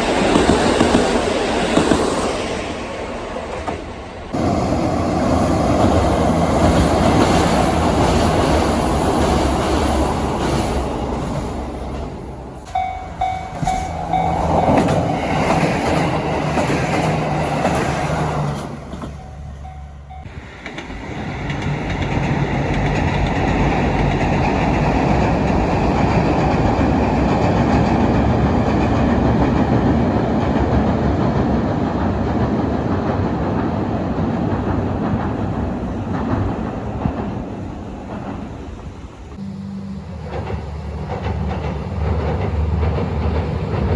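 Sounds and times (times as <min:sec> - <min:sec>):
train wheels clickety-clack: 0:00.0 - 0:39.4, 0:40.2 - 0:43.9
short repeating tone: 0:12.8 - 0:15.2, 0:39.4 - 0:40.4.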